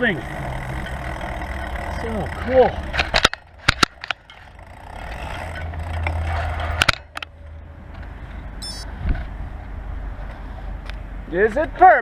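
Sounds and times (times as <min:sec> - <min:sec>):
road noise: 0:00.0 - 0:12.0
sharp clacks: 0:02.9 - 0:04.5.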